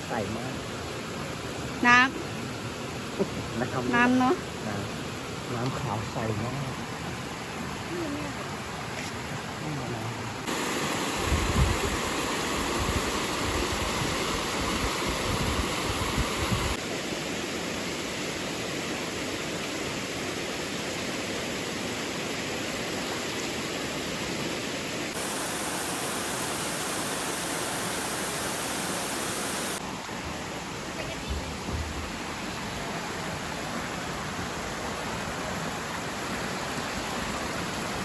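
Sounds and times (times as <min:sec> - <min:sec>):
waterfall rushing: 0:03.1 - 0:17.5, 0:24.8 - 0:38.0.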